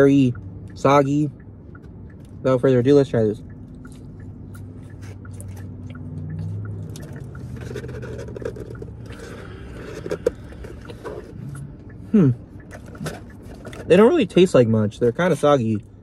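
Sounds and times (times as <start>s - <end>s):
low steady car hum: 0.0s - 16.0s
person chewing fries: 3.6s - 13.9s.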